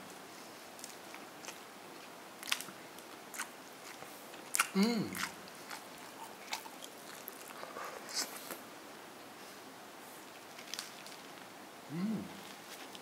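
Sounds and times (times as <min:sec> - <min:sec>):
faint chewing of food: 0:00.1 - 0:08.6.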